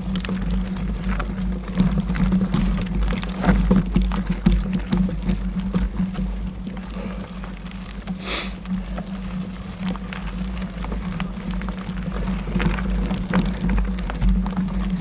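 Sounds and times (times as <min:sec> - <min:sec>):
bike tyres rumbling on dirt: 0:00.0 - 0:15.0
brief hiss: 0:08.2 - 0:08.6.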